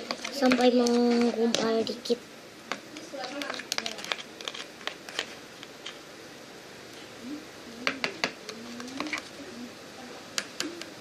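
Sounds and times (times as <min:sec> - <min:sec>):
slime being stirred clicking: 0:02.7 - 0:06.0.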